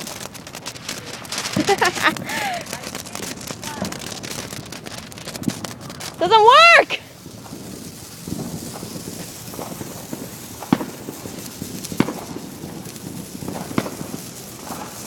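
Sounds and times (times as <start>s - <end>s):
faint fireworks pops: 0.0s - 15.0s
fireworks bangs: 0.0s - 15.0s
outdoor background noise: 0.0s - 15.0s.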